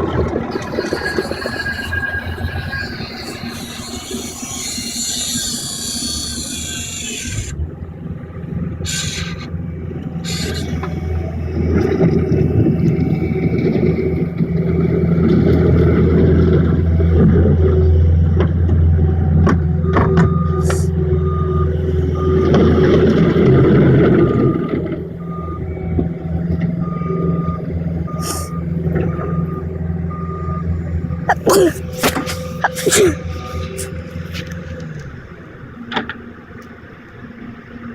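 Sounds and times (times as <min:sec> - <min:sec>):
large engine droning: 0:00.0 - 0:37.9
hiss: 0:08.9 - 0:09.4.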